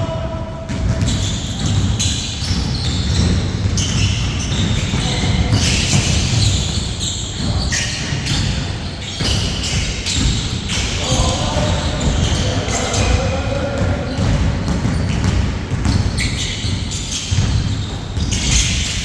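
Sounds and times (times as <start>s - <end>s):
basketball bouncing on court: 0.0s - 19.0s.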